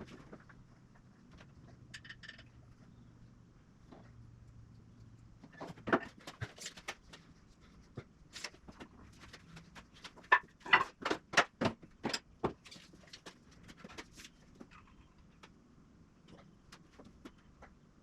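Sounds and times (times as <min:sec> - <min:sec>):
sharp knocks and clatters: 0:05.4 - 0:07.3.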